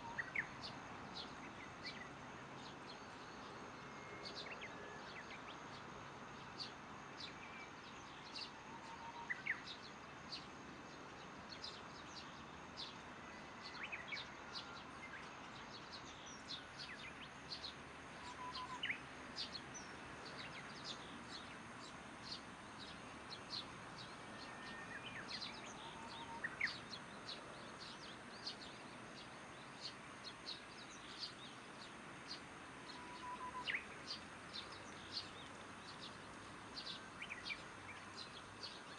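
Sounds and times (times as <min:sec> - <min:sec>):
faint insect drone: 0:00.0 - 0:38.9
birds chirping: 0:13.6 - 0:38.9.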